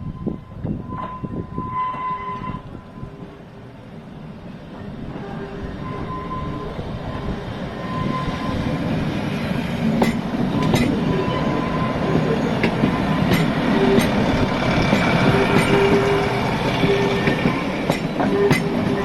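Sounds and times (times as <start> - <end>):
train approaching: 0.0 - 19.0
train wheels clicking on track: 8.2 - 19.0.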